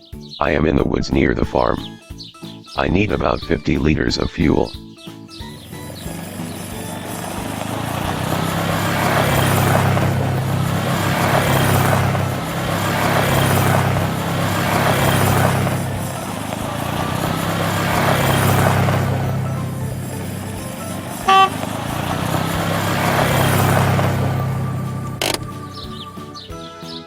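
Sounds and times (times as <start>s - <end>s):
vehicle engine running: 5.4s - 26.5s.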